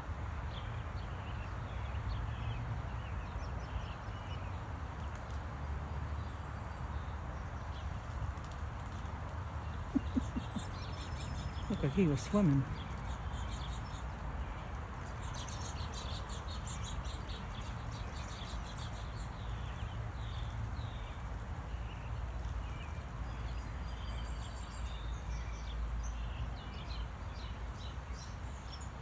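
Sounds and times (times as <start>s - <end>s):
small birds chirping: 2.1s - 6.4s, 7.6s - 29.0s.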